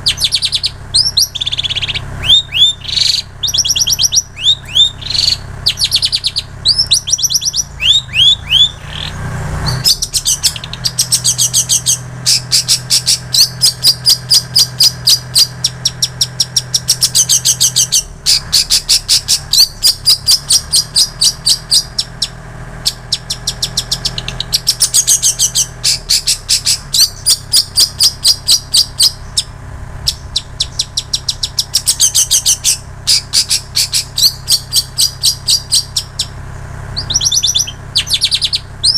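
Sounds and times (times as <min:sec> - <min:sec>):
bird downward-sweeping whistles: 0:00.0 - 0:29.5, 0:37.0 - 0:38.9.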